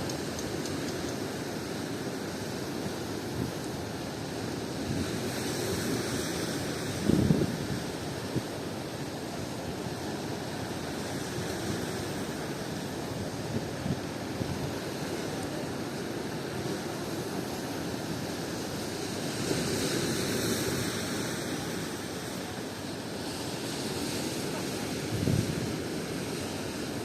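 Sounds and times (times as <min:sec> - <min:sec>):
ocean surf: 0:00.0 - 0:27.0
wind buffeting microphone: 0:07.0 - 0:08.0, 0:25.0 - 0:25.9.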